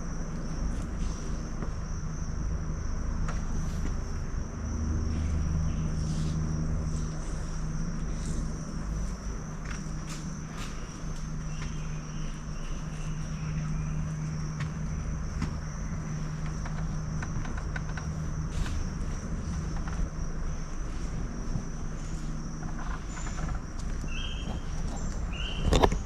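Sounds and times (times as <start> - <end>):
high-pitched insect trill: 0.0 - 26.0
low steady hum: 0.0 - 26.0.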